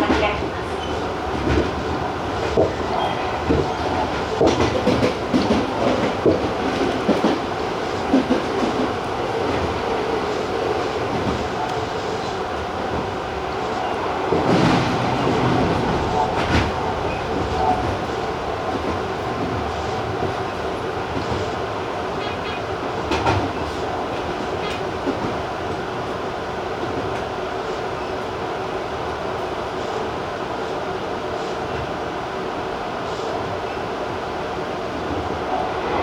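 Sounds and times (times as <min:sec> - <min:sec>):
wheels clacking over rail joints: 0:00.0 - 0:21.6
electric train rolling rumble: 0:00.0 - 0:36.0.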